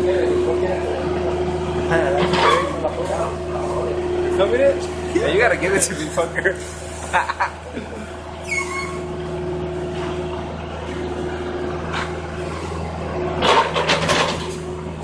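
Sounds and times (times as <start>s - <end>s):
diesel engine running: 0.0s - 15.0s
burst of noise: 5.8s - 8.5s
short squeak: 8.0s - 9.1s.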